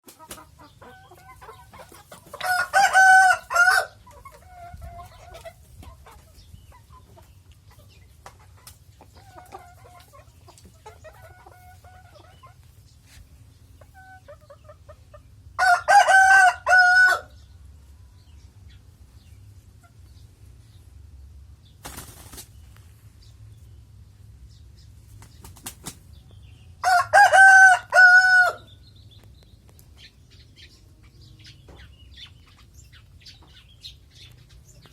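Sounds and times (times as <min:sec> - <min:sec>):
chicken clucking: 0:00.0 - 0:20.3, 0:29.2 - 0:34.9
rooster crowing: 0:02.4 - 0:04.0, 0:15.6 - 0:17.3, 0:26.8 - 0:28.7.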